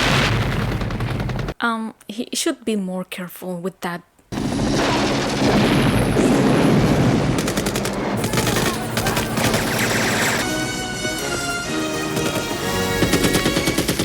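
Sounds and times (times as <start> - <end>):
rapid machine-gun fire: 0.0 - 1.6, 4.4 - 10.6, 12.0 - 14.0
film score music: 7.1 - 14.0.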